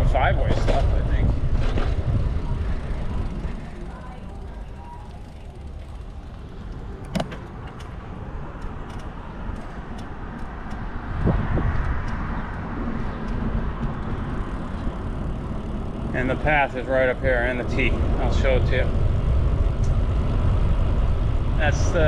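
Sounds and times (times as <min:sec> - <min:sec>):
traffic rumble: 0:00.0 - 0:22.0
vehicle passing: 0:00.0 - 0:22.0.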